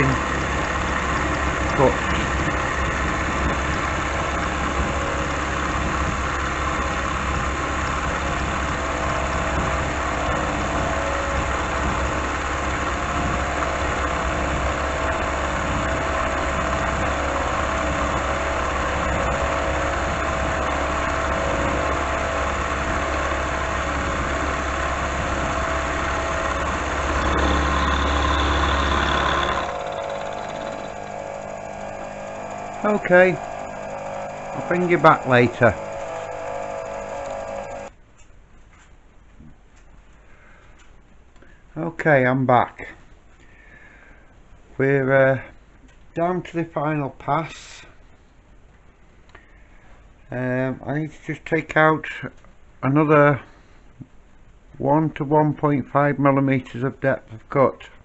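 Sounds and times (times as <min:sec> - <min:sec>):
milling machine cutting steel: 0:00.0 - 0:37.9.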